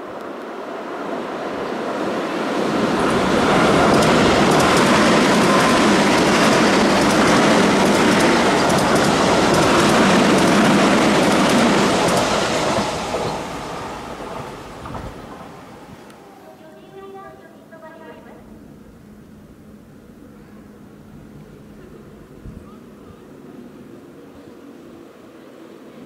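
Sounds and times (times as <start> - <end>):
electric train passing at speed: 0.0 - 26.0
rail joint clicks: 2.7 - 16.9.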